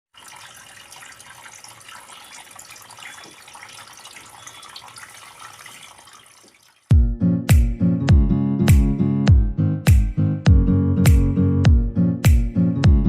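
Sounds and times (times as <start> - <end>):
water fountain trickling: 0.0 - 6.9.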